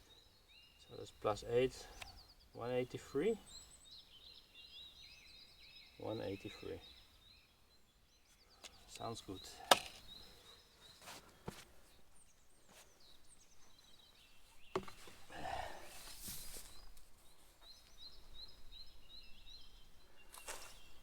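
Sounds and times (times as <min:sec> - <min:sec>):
light knocks: 0:14.7 - 0:15.1
rustling handling noise: 0:15.9 - 0:17.7.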